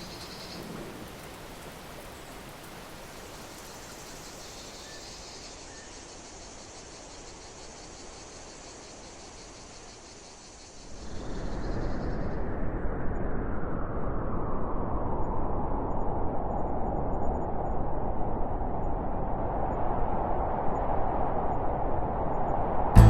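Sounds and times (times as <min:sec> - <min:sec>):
steady hiss: 0:00.0 - 0:11.2
insects trilling: 0:00.0 - 0:12.3.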